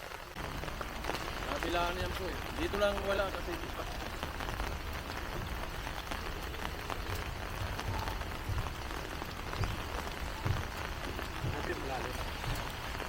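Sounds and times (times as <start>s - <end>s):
heavy rain pattering: 0.0s - 13.0s
low thumps: 4.2s - 13.0s.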